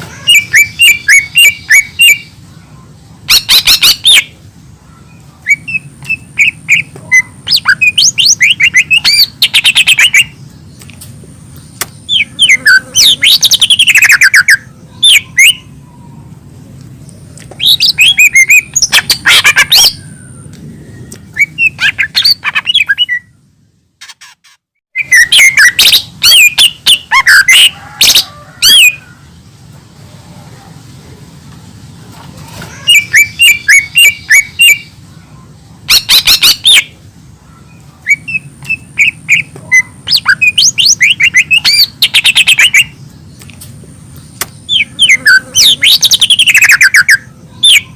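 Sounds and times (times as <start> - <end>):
low steady hum: 0.0 - 24.1
bird singing whistled phrases: 0.3 - 2.3, 5.4 - 10.4, 12.1 - 15.7, 17.6 - 20.4, 21.0 - 23.4, 24.9 - 29.0, 32.8 - 34.9, 35.9 - 37.0, 37.7 - 43.0, 44.7 - 47.9.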